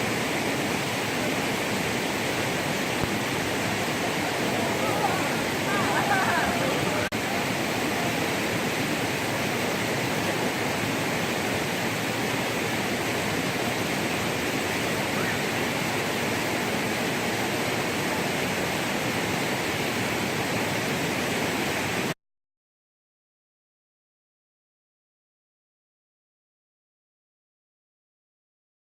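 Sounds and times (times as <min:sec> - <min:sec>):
rushing water: 0:00.0 - 0:22.2.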